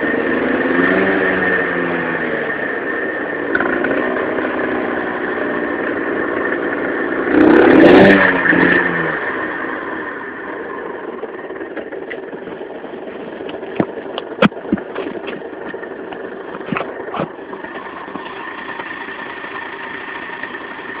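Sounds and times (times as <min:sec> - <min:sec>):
two-stroke engine idling: 0:00.0 - 0:21.0.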